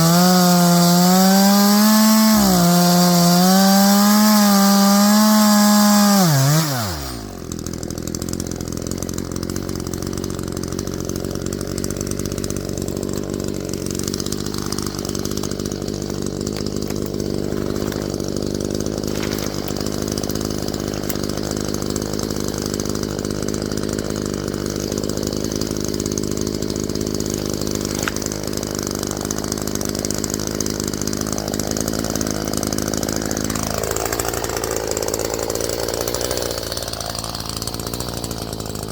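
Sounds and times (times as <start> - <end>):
chainsaw revving and idling: 0.0 - 38.9.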